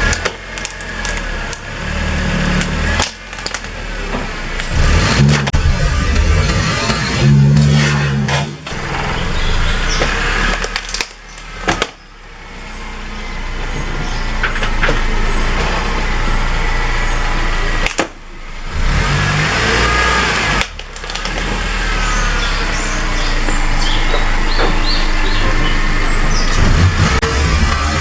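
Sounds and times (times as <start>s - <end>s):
sharp cracks: 0.0s - 13.0s, 14.3s - 28.0s
car engine running: 0.0s - 28.0s
tyres rolling over ground: 0.0s - 28.0s.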